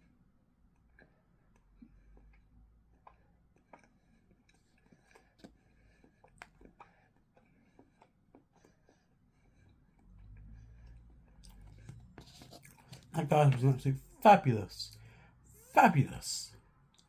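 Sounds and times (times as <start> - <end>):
biting and chewing flaky pastry: 0.0 - 13.1.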